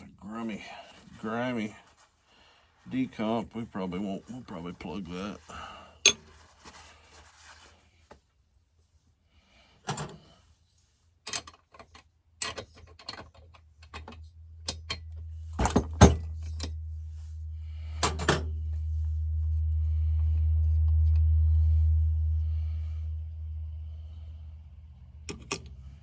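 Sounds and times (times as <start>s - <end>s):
steady low hum: 13.3s - 26.0s.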